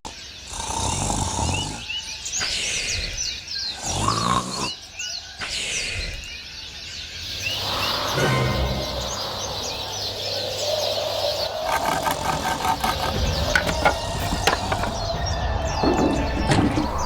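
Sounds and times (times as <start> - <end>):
birds chirping: 5.8 - 17.0.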